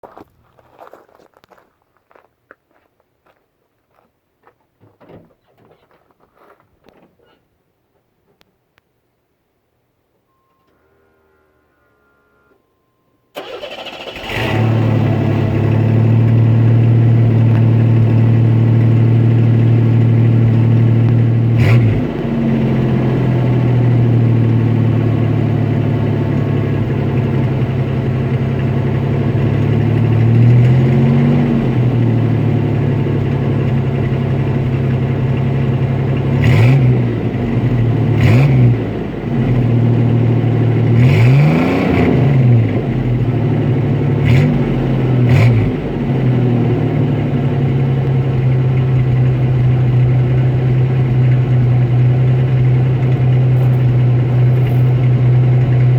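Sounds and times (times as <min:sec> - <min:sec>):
car engine starting and idling: 0:10.4 - 0:55.9
car engine revving: 0:13.4 - 0:55.9.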